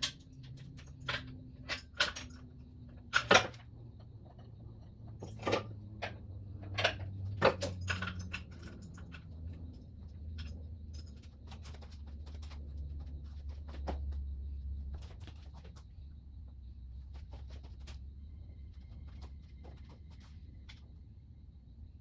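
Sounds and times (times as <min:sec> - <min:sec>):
metallic clinks and knocks: 0:00.0 - 0:14.2.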